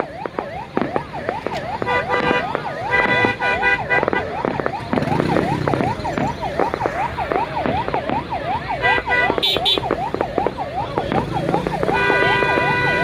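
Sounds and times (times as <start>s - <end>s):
noisy crowd: 0.0s - 13.0s
yelping siren warble: 0.0s - 13.0s
steady horn blasts: 1.8s - 4.4s, 8.8s - 9.9s, 11.9s - 13.0s.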